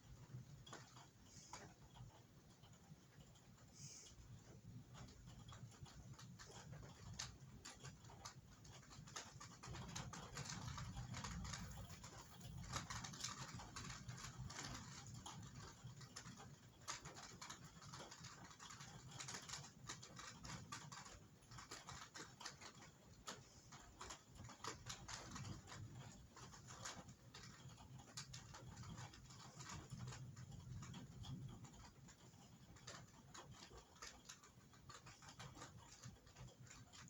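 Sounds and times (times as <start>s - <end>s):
rain drops on a hard surface: 0.0s - 37.0s.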